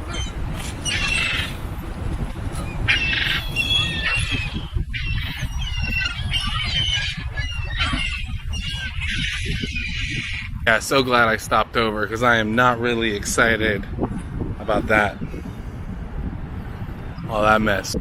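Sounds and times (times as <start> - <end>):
flock of birds calling: 0.0 - 1.9, 2.5 - 10.6
steady low rumble: 0.0 - 18.0.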